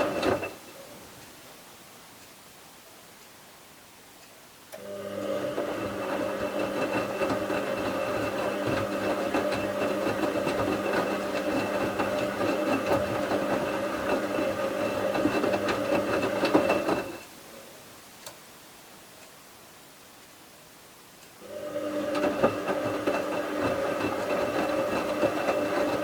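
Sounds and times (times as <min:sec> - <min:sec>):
washing machine motor humming and rattling: 0:00.0 - 0:00.6, 0:04.8 - 0:17.3, 0:21.4 - 0:26.0.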